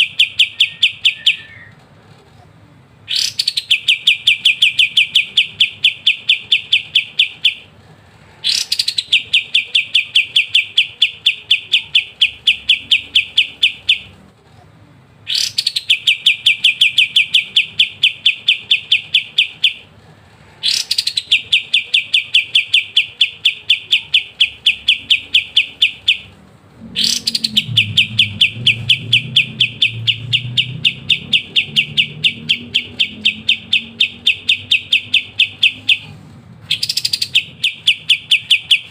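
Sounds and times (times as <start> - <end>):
bird song with rattling notes: 0.0 - 1.8, 3.1 - 7.7, 8.4 - 14.1, 15.3 - 19.9, 20.6 - 26.3, 27.0 - 36.0, 36.7 - 38.9.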